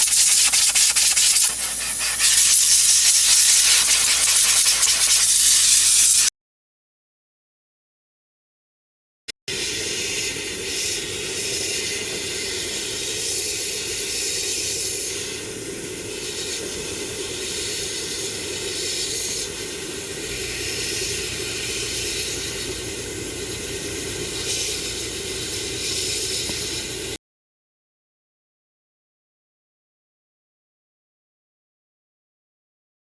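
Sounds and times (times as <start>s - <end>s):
hissing spray jet: 0.0s - 6.3s, 18.3s - 27.2s
steady hum: 19.6s - 27.2s.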